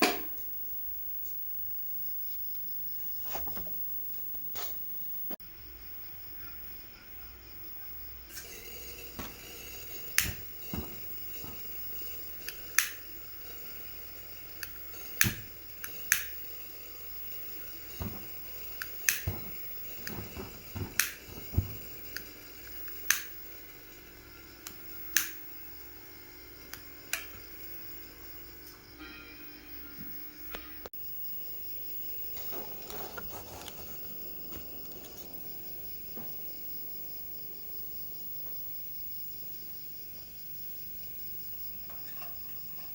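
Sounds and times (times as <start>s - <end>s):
gas lantern hissing: 0.0s - 42.9s.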